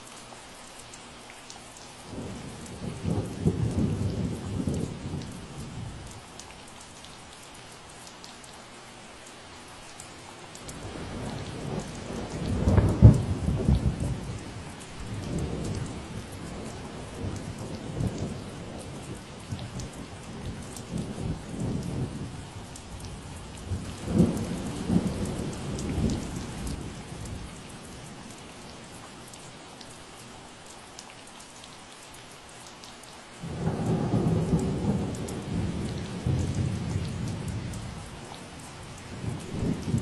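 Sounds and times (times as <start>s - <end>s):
steady rain falling: 0.0s - 40.0s
roll of thunder: 33.4s - 38.3s, 39.1s - 40.0s.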